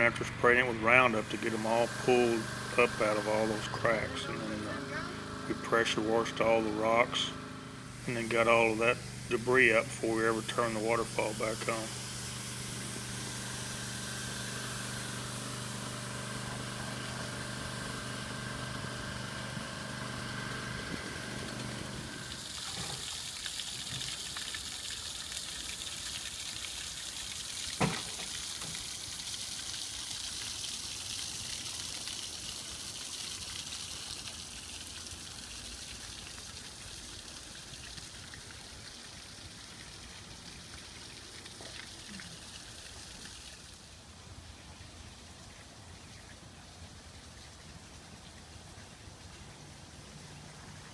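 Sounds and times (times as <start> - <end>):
waterfall hissing: 0.0 - 18.2
motor humming: 0.0 - 23.0.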